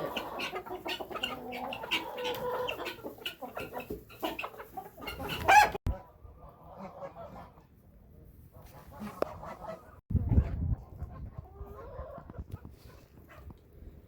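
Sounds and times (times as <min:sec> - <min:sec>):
chicken squawk: 0:00.0 - 0:07.6
chickens clucking: 0:00.0 - 0:14.0.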